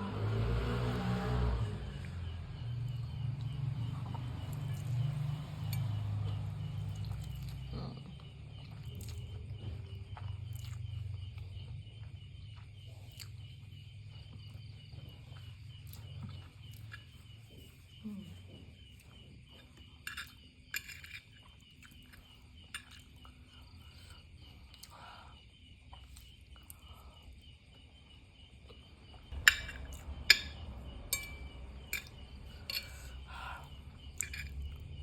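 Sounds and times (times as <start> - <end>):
insect chirping: 0.0 - 35.0
chewing noodles: 4.0 - 18.0.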